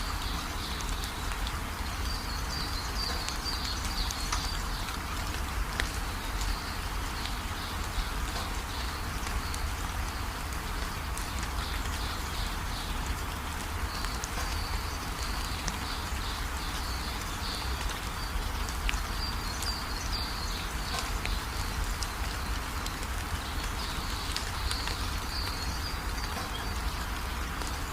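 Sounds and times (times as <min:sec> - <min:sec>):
steady rain falling: 0:00.0 - 0:27.9.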